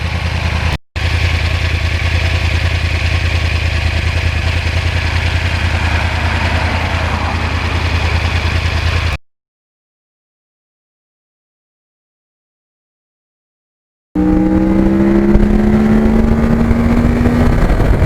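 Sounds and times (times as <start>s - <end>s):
motorcycle engine idling: 0.0s - 9.2s, 14.2s - 18.0s.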